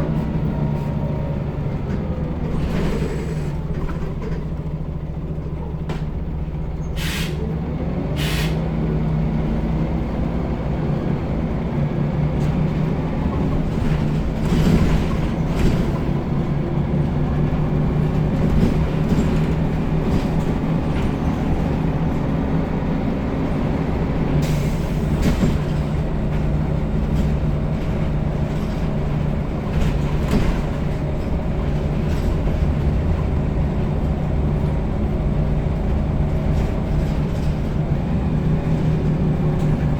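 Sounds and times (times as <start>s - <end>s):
bus diesel engine accelerating: 0.0s - 39.9s
short air hisses: 7.0s - 7.4s, 8.2s - 8.6s.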